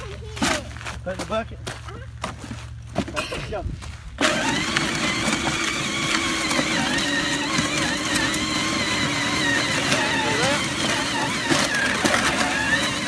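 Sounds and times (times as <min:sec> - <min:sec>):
toy electric motor whine: 0:04.2 - 0:13.0.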